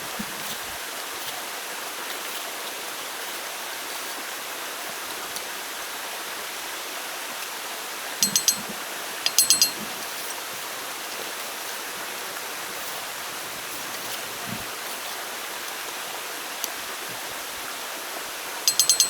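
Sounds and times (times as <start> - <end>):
sharp high ringing clicks: 8.2 - 10.0, 18.7 - 19.0.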